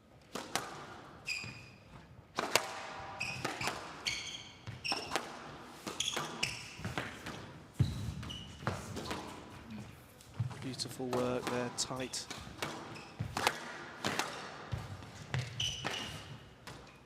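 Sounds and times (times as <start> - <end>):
shoes squeaking on wooden floor: 1.2 - 2.1, 3.1 - 5.2, 5.8 - 13.4, 14.7 - 17.0
squash ball smacks: 2.3 - 4.0, 10.4 - 16.8.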